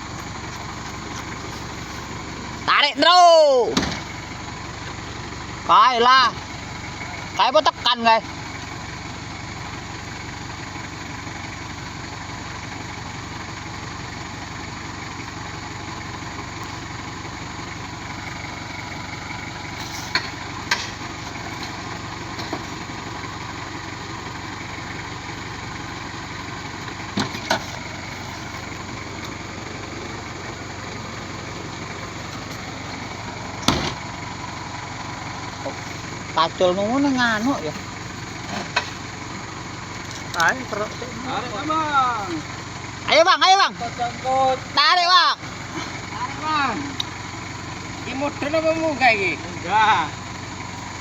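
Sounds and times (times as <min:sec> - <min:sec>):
truck engine idling: 0:00.0 - 0:51.0
sharp knocks or clanks: 0:33.6 - 0:34.0.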